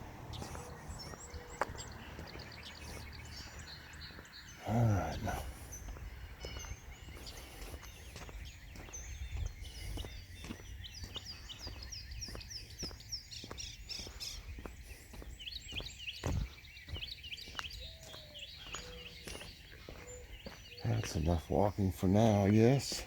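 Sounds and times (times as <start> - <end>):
low outdoor rumble: 0.0 - 6.5
soft footsteps: 0.0 - 20.7
songbirds singing and chirping: 0.0 - 23.0.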